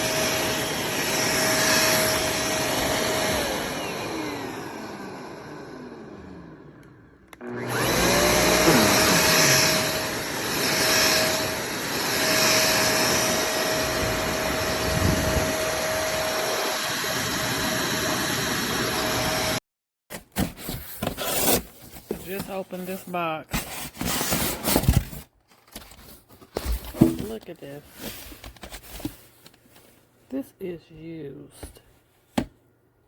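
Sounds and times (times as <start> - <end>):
handheld vacuum motor whining: 0.0 - 19.6.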